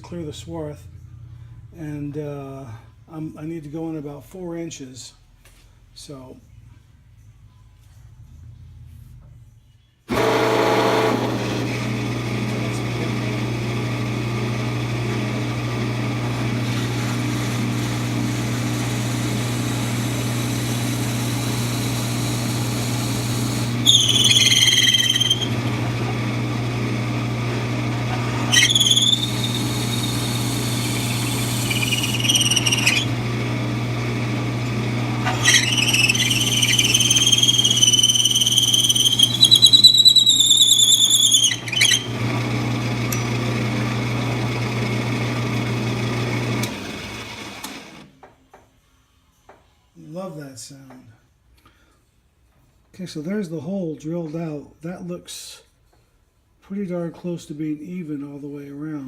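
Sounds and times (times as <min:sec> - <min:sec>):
lathe motor humming: 0:10.1 - 0:48.0
drill bit squealing in wood: 0:15.0 - 0:33.4, 0:35.1 - 0:43.9.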